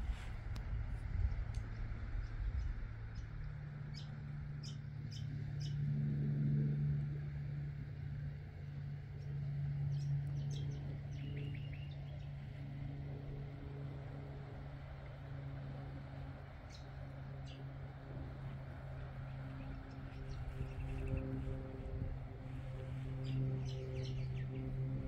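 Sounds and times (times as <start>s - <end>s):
low engine hum: 0.0s - 25.0s
birds chirping: 9.2s - 12.7s, 16.6s - 21.8s, 22.4s - 25.0s.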